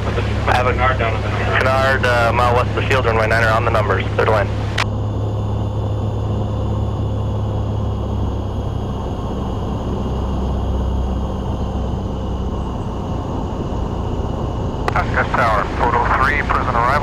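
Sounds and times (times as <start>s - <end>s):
propeller plane engine drone: 0.0s - 17.0s.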